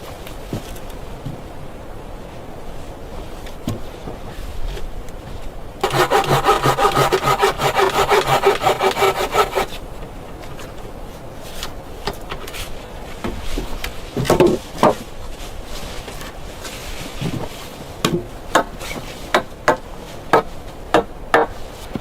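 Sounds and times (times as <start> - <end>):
saw cutting wood: 5.8 - 9.8.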